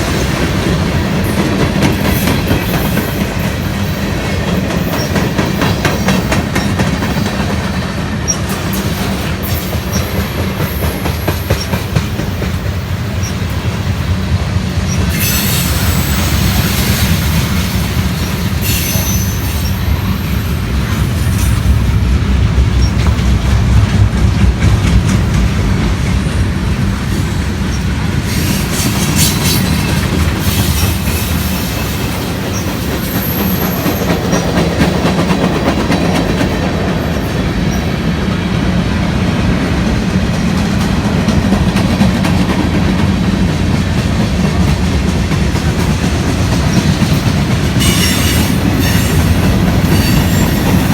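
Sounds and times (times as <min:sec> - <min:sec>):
train wheels rumbling and clattering: 0:00.0 - 0:50.9
wheel flanges squealing: 0:14.8 - 0:17.2, 0:18.2 - 0:21.8, 0:27.7 - 0:34.6, 0:47.8 - 0:50.9.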